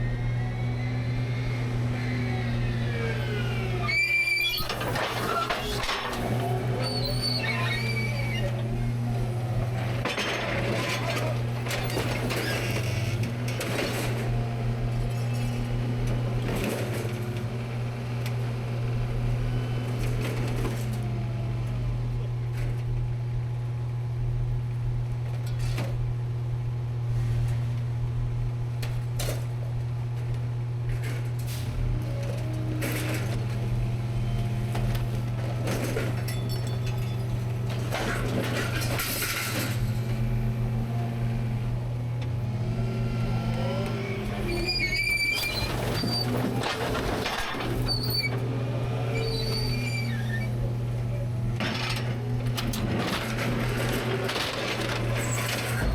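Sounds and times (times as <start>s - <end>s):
garbage truck engine humming: 0.0s - 25.2s, 26.1s - 55.9s
clanks and knocks from hopper: 4.6s - 7.0s, 9.5s - 18.4s, 30.9s - 41.5s, 43.2s - 51.0s, 51.6s - 55.9s.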